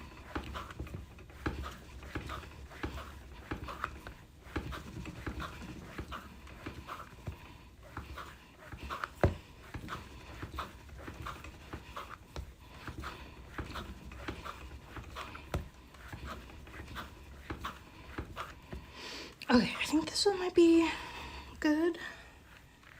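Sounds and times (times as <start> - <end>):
clay pushed on work surface: 0.0 - 20.1
hard breathing: 0.0 - 22.9.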